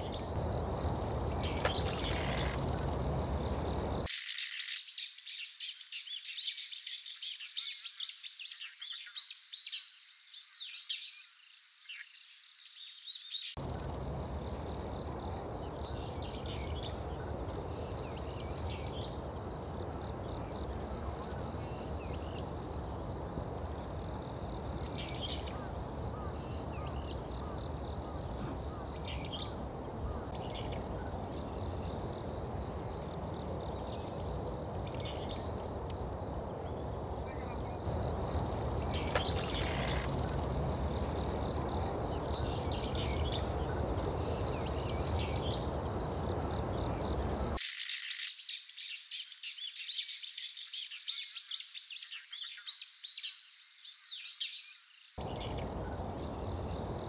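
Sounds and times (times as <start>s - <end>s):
low outdoor rumble: 0.0s - 4.1s, 13.6s - 47.6s, 55.2s - 57.0s
birds chirping: 0.0s - 4.5s, 13.5s - 47.6s, 55.2s - 57.0s.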